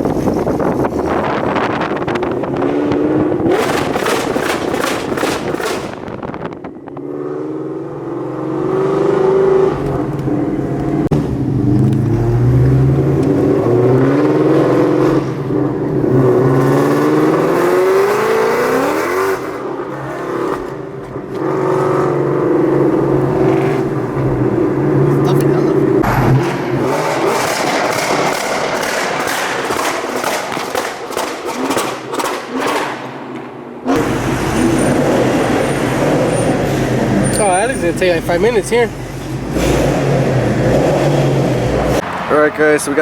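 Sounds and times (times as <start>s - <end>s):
car engine accelerating: 0.0s - 43.0s.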